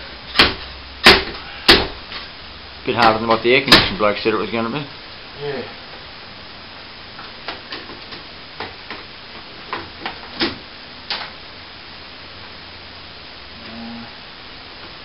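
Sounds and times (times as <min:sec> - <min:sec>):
sharp knocks and cracks: 0:00.3 - 0:02.0, 0:03.0 - 0:04.0, 0:07.2 - 0:11.4.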